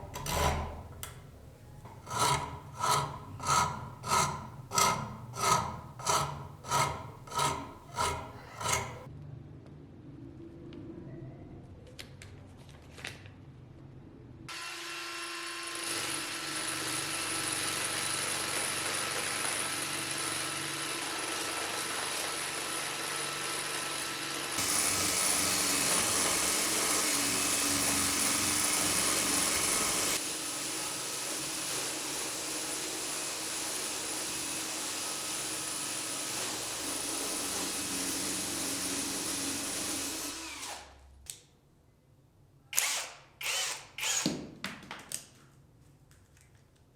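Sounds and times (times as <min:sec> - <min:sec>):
electric power tool on metal: 0:00.0 - 0:01.3, 0:01.9 - 0:09.1, 0:14.5 - 0:41.0, 0:42.8 - 0:44.4.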